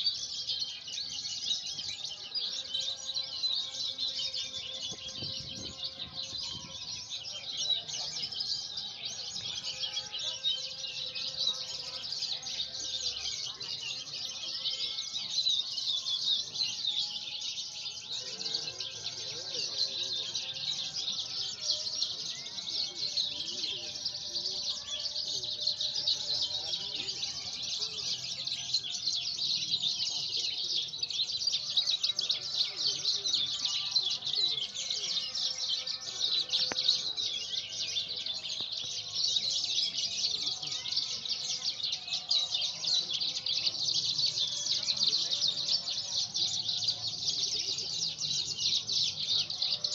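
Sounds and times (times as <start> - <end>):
lark singing high chirps and trills: 0.0 - 14.2
birds singing rapid chirps and trills: 0.0 - 49.9.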